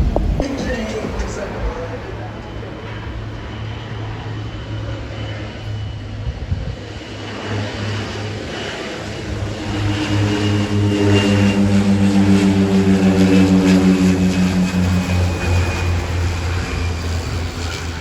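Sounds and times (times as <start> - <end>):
aircraft engines passing: 0.0 - 18.0
low hum: 0.0 - 18.0.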